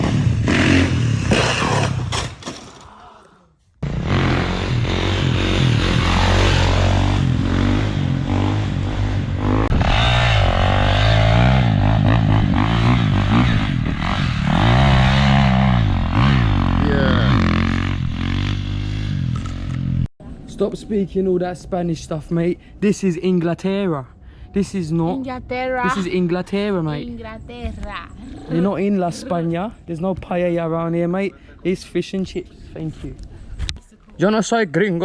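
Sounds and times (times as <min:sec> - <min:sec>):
dirt bike engine revving: 0:00.0 - 0:02.4, 0:03.8 - 0:20.1.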